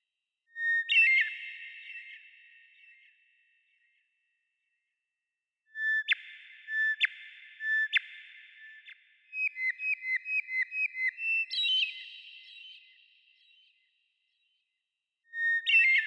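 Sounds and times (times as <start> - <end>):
songbird whistling: 5.8 - 13.5.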